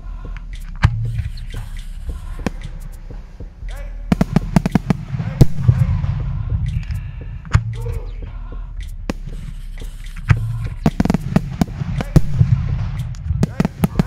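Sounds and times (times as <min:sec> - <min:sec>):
low rumble: 0:00.0 - 0:14.0
fireworks bangs and crackling pops: 0:04.1 - 0:06.2, 0:10.8 - 0:14.0.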